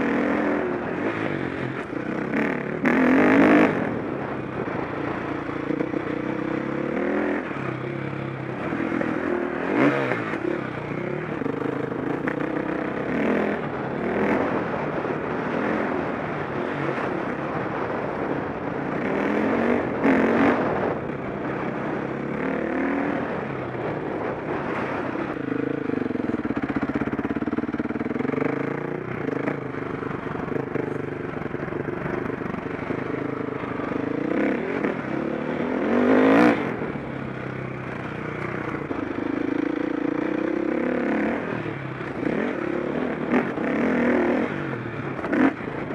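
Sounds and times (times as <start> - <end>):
motocross engine revving: 0.0 - 18.0, 30.3 - 37.2, 37.9 - 45.9.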